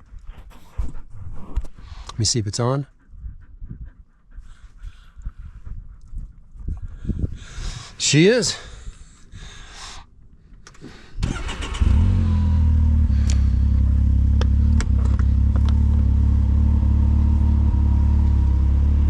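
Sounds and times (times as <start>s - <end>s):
car engine idling: 11.3s - 19.0s.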